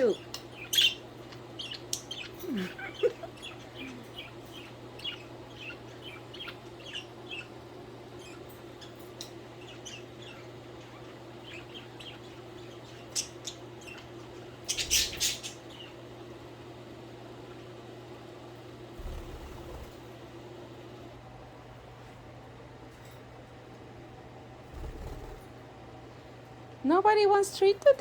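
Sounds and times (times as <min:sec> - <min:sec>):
budgerigars chirping: 0:00.0 - 0:16.0
steady low hum: 0:00.0 - 0:28.0.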